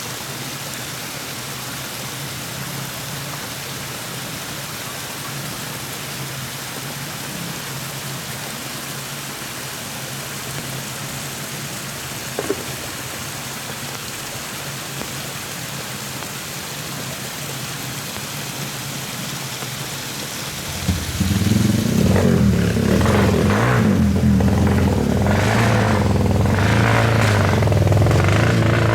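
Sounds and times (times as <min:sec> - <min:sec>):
heavy rain pouring: 0:00.4 - 0:28.9
short knock: 0:12.4 - 0:12.9
loud low pitched sound: 0:20.5 - 0:28.9.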